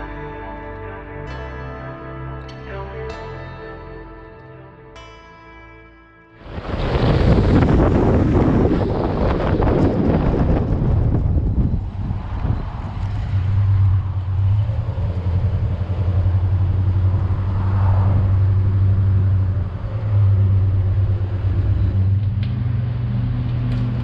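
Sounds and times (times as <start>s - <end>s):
car engine droning: 6.4s - 24.0s
road noise: 6.4s - 24.0s.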